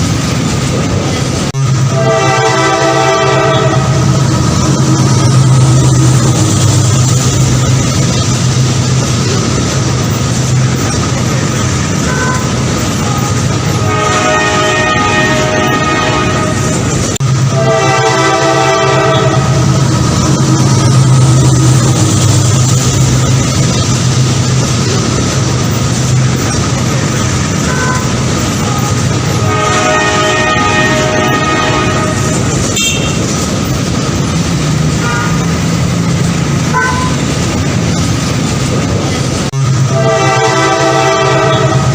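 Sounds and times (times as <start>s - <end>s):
train engine tone: 0.0s - 41.9s
train rumbling rush: 0.0s - 41.9s
train horn: 1.8s - 4.2s, 12.0s - 19.7s, 27.6s - 33.3s, 34.9s - 35.5s, 36.7s - 37.2s, 39.8s - 41.9s.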